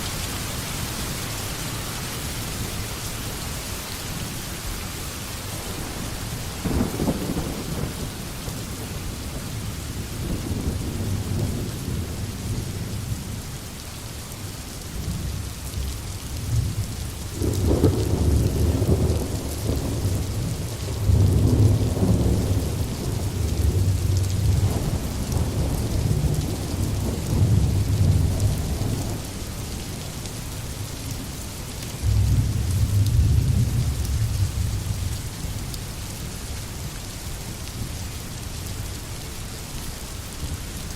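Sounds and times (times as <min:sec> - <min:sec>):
steady rain in forest: 0:00.0 - 0:40.9
rolling thunder: 0:15.0 - 0:29.3, 0:32.0 - 0:35.2.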